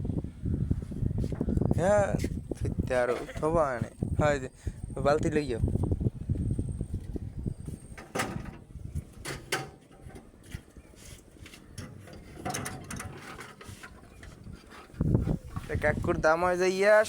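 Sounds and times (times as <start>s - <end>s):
sharp knocks and rattles: 8.0s - 10.7s, 11.8s - 15.7s.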